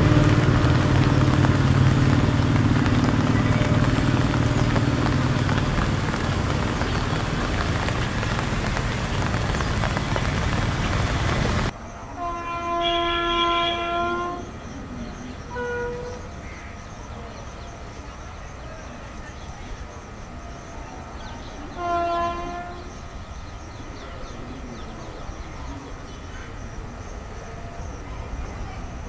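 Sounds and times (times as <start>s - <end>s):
locomotive horn: 0.0s - 14.6s, 15.4s - 16.3s, 21.7s - 23.1s
train wheels rumbling on rail: 0.0s - 29.0s.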